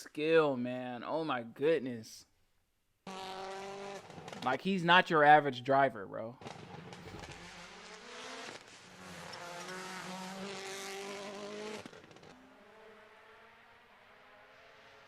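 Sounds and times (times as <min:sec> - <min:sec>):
rally car engine at high revs: 0:03.0 - 0:04.5, 0:06.4 - 0:15.0
road and tyre noise: 0:03.0 - 0:04.7, 0:06.4 - 0:15.0.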